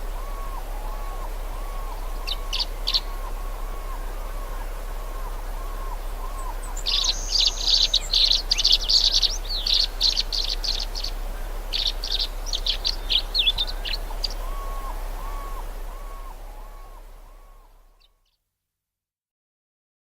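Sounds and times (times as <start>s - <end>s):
low hum: 0.0s - 18.0s
songbird singing chattering song: 0.0s - 18.2s
lower repeated bird call: 0.0s - 18.3s.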